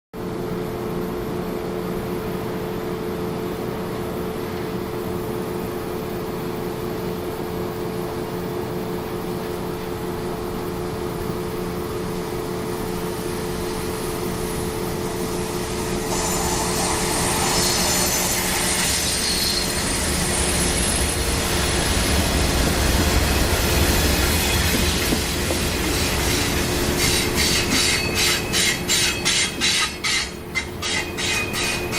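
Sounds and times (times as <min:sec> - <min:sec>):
diesel locomotive hum: 0:00.2 - 0:31.9
deep train rumble: 0:03.6 - 0:31.9
train wheels on rails: 0:09.3 - 0:31.9
high hissing squeal: 0:15.3 - 0:31.9.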